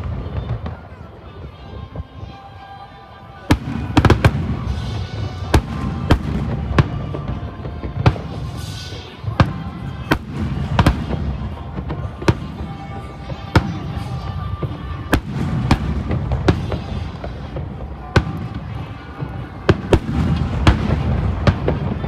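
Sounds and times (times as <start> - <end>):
background music: 0.0 - 22.0.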